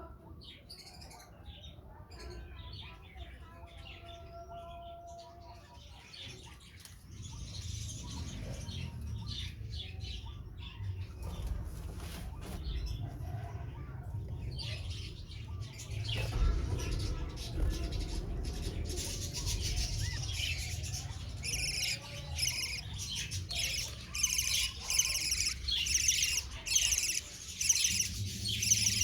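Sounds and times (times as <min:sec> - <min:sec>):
low rumble: 0:12.7 - 0:29.0
wings fluttering: 0:15.8 - 0:29.0
budgerigars chirping: 0:17.3 - 0:29.0.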